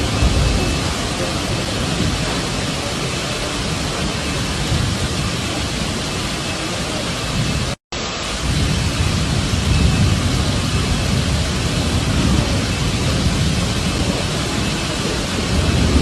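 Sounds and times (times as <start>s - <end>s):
deep rumble: 0.0s - 16.0s
heavy rain pouring: 0.0s - 16.0s.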